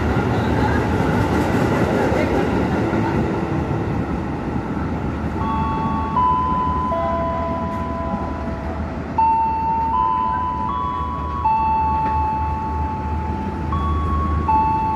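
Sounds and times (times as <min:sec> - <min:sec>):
train wheels rumbling on rails: 0:00.0 - 0:14.9
slow electronic tune: 0:05.4 - 0:14.9.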